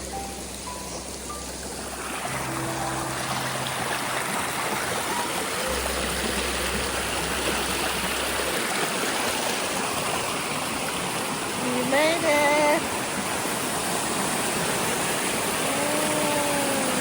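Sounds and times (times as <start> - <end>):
waterfall and creek rushing: 0.0 - 17.0.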